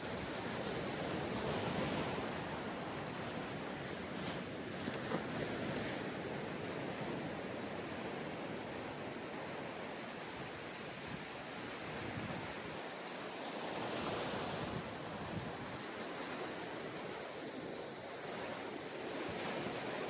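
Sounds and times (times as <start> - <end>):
waves washing onto beach: 0.0 - 20.0
wind on microphone: 10.8 - 12.9, 13.7 - 18.5.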